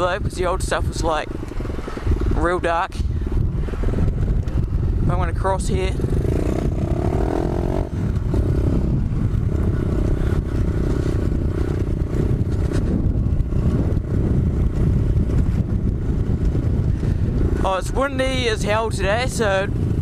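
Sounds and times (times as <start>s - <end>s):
wind rumble on microphone: 0.0s - 20.0s
motorbike engine revving: 5.8s - 18.1s.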